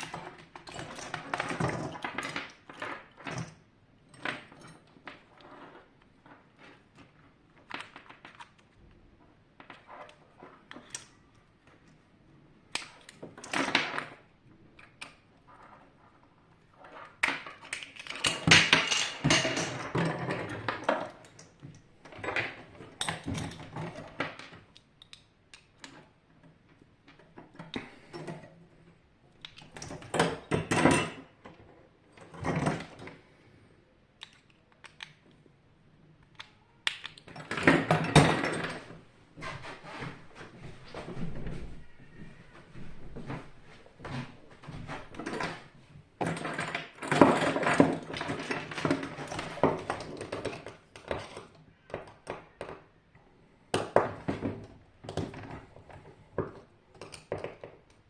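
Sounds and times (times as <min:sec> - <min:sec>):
metal parts and tools clinking: 0:16.9 - 0:21.4.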